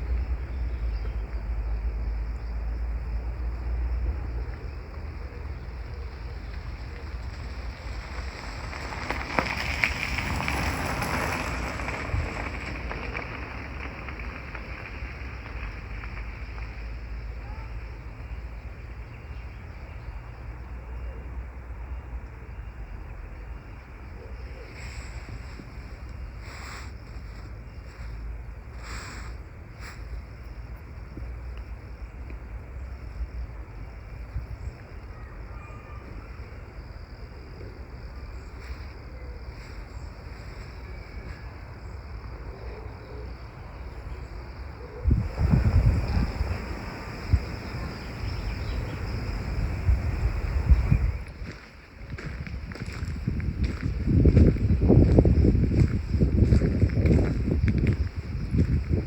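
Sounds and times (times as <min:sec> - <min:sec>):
faint insect chirring: 0:14.9 - 0:59.0
even rush of noise: 0:45.0 - 0:51.3
strong low rumble: 0:45.0 - 0:59.0
bird chirps: 0:46.0 - 0:49.5.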